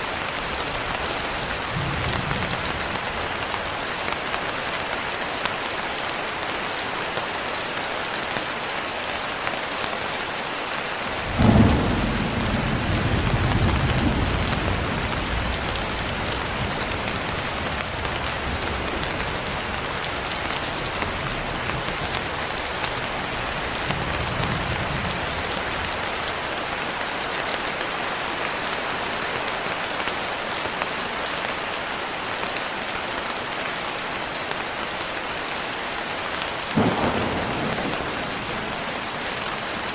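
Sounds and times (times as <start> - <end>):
steady rain hissing: 0.0 - 39.9
thunder rumbling: 0.1 - 3.8, 11.2 - 26.1, 36.8 - 39.9.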